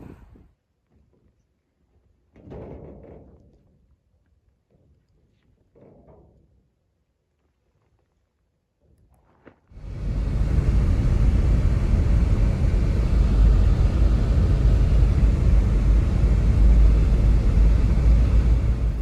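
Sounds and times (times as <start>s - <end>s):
strong blizzard wind: 9.8s - 19.0s.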